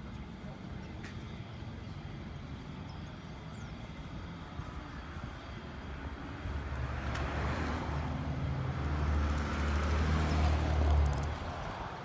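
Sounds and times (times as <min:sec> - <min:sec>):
traffic noise: 0:00.0 - 0:12.0
vehicle engine droning: 0:00.0 - 0:12.0.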